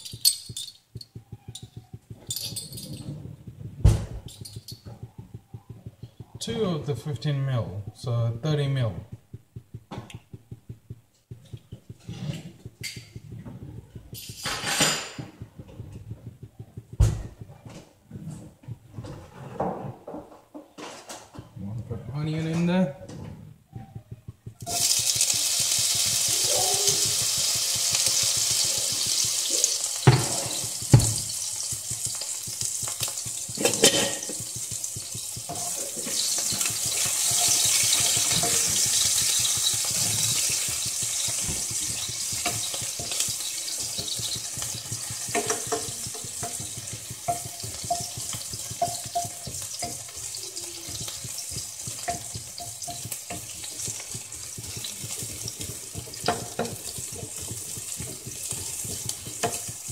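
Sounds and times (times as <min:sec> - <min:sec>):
onion sizzling in frying pan: 0:11.2 - 0:17.2, 0:24.3 - 0:59.9.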